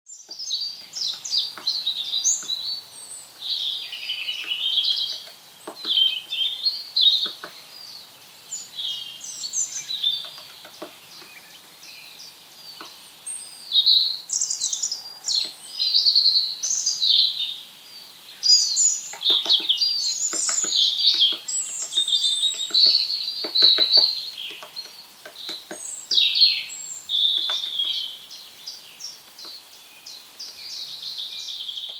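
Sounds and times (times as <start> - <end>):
birds chirping and twittering: 0.1 - 31.9
woodpecker pecking pine cone: 0.3 - 8.7, 9.4 - 13.1, 18.8 - 28.1.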